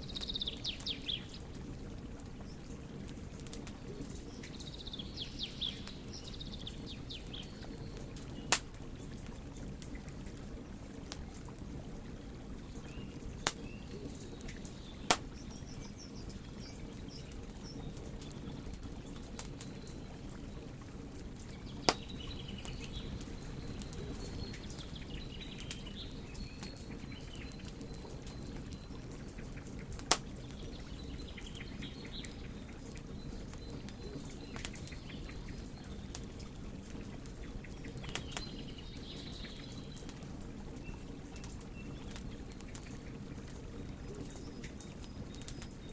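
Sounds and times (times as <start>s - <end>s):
wood fire crackling: 0.0s - 45.9s
loud pops from burning wood: 8.3s - 10.0s, 13.4s - 15.4s, 21.4s - 25.9s, 29.9s - 30.4s, 33.4s - 34.9s, 38.0s - 38.6s, 44.2s - 45.8s.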